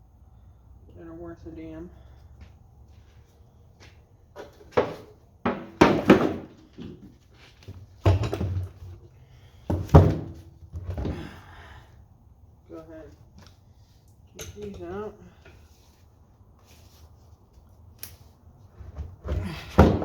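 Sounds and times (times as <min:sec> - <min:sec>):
metal tools clunking on workbench: 0:08.0 - 0:08.8.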